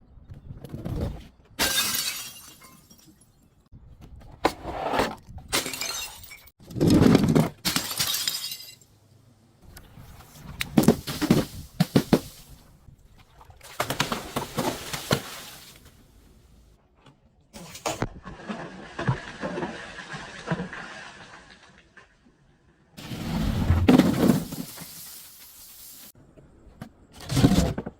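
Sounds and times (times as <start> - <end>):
glass smashing and crunching: 1.6 - 3.4, 5.6 - 6.5, 7.6 - 8.9.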